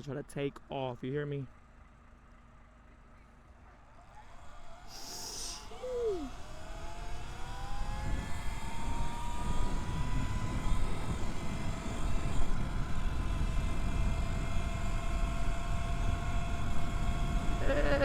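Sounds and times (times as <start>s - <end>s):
electric bike motor whining: 4.6s - 18.0s
wind rumble on microphone: 6.2s - 18.0s.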